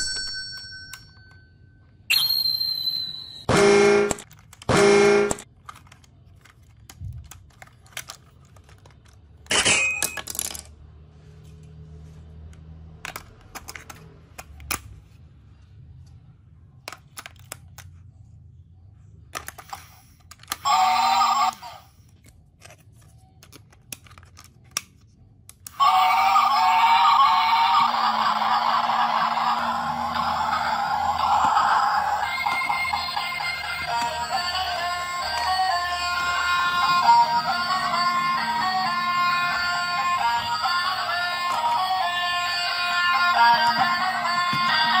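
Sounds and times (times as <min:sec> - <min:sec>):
toy electronic sound effects: 0:02.1 - 0:05.4, 0:20.5 - 0:22.0, 0:25.7 - 0:45.0
plastic toy clicks and knocks: 0:13.0 - 0:15.0.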